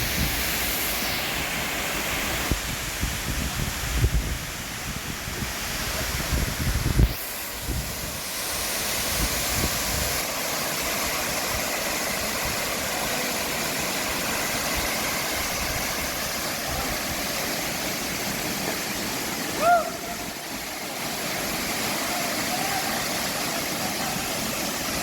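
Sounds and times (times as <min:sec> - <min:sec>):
waterfall rushing: 0:00.0 - 0:25.0
wind thumps on microphone: 0:02.4 - 0:08.2.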